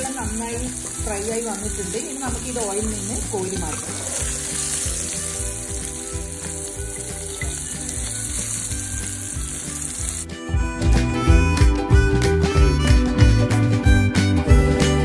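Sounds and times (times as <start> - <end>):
cheese sizzling in oil: 0.0 - 10.3.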